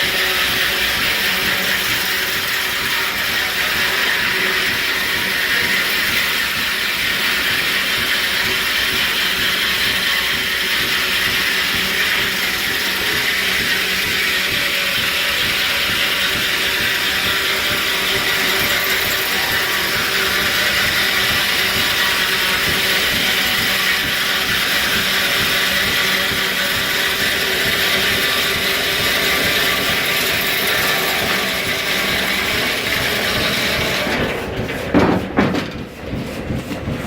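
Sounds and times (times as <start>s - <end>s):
sawmill machinery clattering: 0.0s - 37.0s
knocks: 29.0s - 37.0s.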